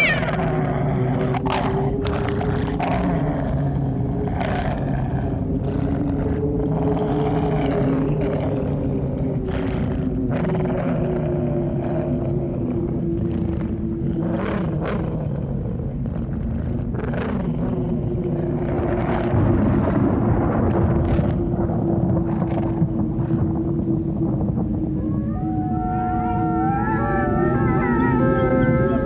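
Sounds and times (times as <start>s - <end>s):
eerie held drone tone: 0.0s - 29.0s
low rumble: 0.0s - 29.0s.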